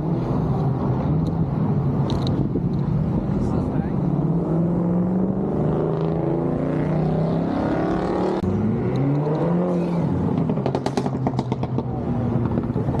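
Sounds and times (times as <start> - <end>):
car engine revving: 3.2 - 13.0
exhaust pops and crackles: 10.3 - 13.0.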